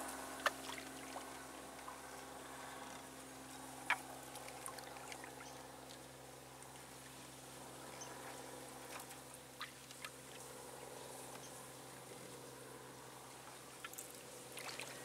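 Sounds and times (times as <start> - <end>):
steady low hum: 0.0 - 15.0
paddle drips and splashes: 0.4 - 1.9, 3.9 - 6.0, 13.8 - 15.0.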